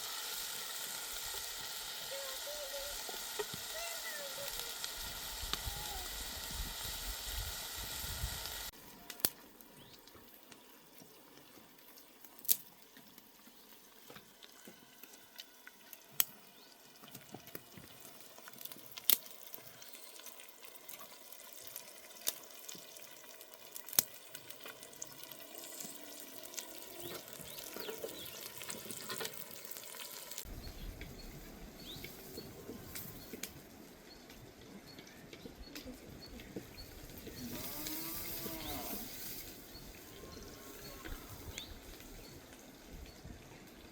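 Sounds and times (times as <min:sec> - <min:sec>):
food sizzling in a hot pan: 0:00.0 - 0:08.7, 0:19.7 - 0:30.5, 0:37.3 - 0:41.6.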